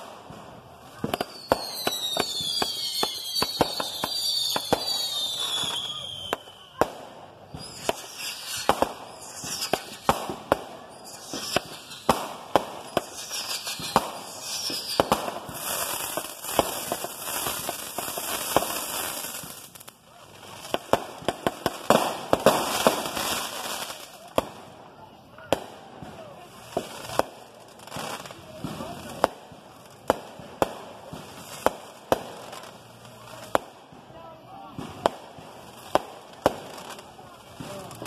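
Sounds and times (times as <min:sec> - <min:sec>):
fireworks bangs: 0:00.0 - 0:24.8, 0:25.4 - 0:38.0
falling firework whistles: 0:00.9 - 0:19.8
hiss of spraying sparks: 0:07.6 - 0:19.7.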